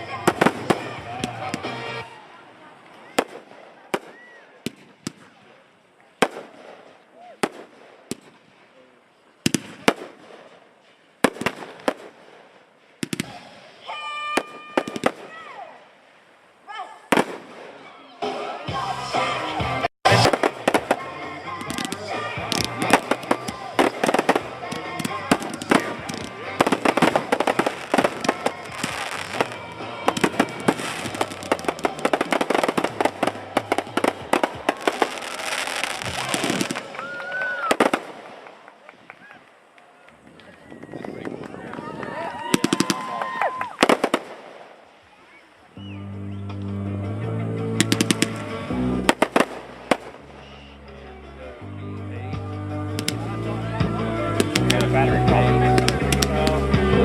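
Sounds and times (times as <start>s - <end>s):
fireworks exploding: 0.0s - 16.2s, 17.1s - 18.7s, 20.0s - 39.6s, 40.9s - 45.3s, 47.8s - 50.7s, 53.0s - 57.0s
crackling hiss: 20.1s - 40.6s, 42.4s - 46.8s, 47.7s - 50.9s, 52.9s - 57.0s.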